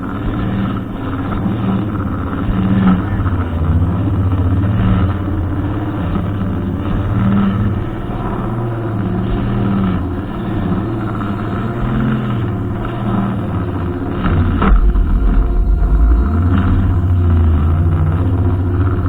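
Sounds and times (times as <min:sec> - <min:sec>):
brushcutter engine running: 0:00.0 - 0:19.0
low rumble: 0:02.0 - 0:07.2, 0:13.7 - 0:19.0.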